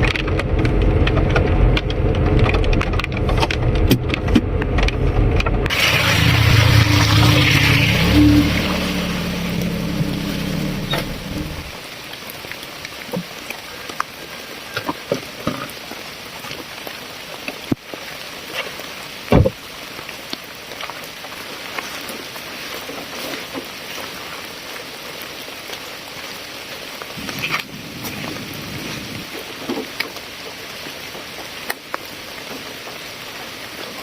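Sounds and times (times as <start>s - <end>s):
low hum: 0.0s - 11.8s
rain on hard surface: 0.0s - 34.0s.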